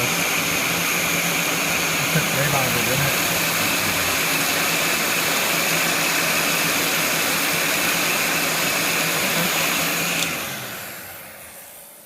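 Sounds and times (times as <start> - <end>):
heat gun blowing with whine: 0.0 - 12.0
heat gun switch click: 10.2 - 10.4.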